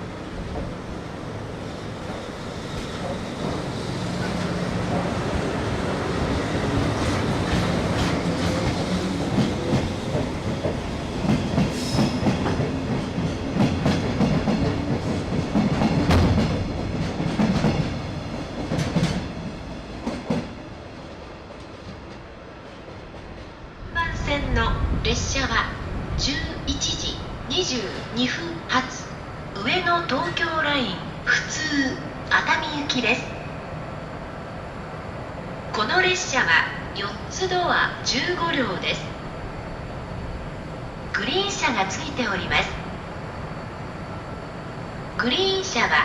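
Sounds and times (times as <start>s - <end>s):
train rumble: 0.0s - 46.0s.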